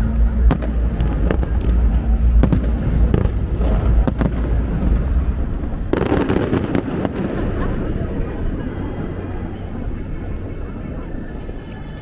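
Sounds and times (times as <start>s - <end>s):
fireworks bangs and crackles: 0.0s - 11.5s
low rumble: 0.0s - 12.0s.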